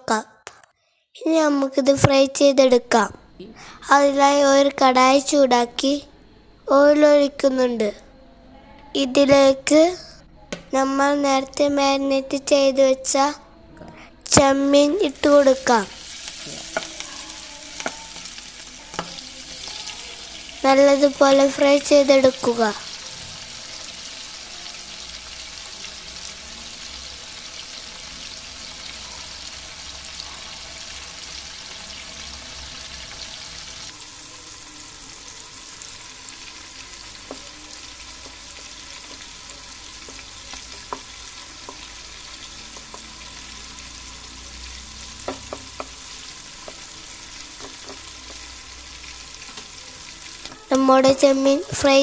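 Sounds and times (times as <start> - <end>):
prawns sizzling in hot oil: 14.3 - 52.0
spatula stirring: 16.0 - 20.6, 36.3 - 44.4.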